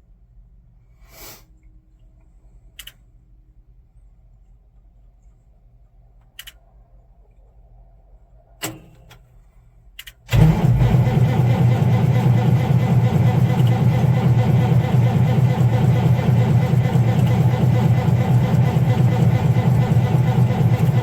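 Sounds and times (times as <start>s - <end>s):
light clicks: 2.8s - 3.0s, 6.2s - 6.6s
diesel engine starter cranking: 10.3s - 21.0s.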